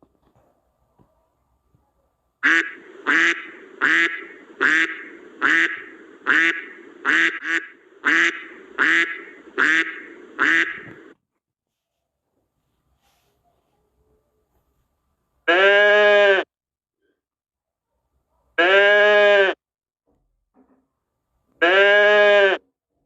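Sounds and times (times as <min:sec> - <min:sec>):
duck quacking: 0:02.4 - 0:11.2.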